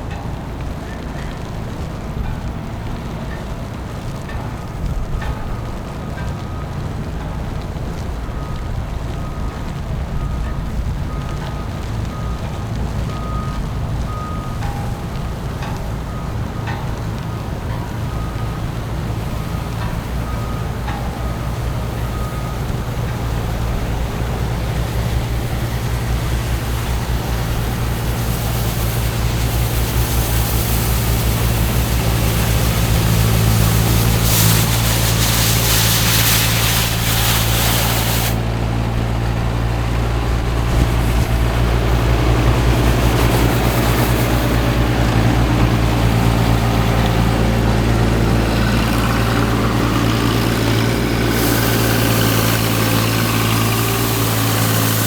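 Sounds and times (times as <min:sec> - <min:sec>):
heavy engine humming: 0:00.0 - 0:55.0
loud hiss: 0:21.7 - 0:55.0.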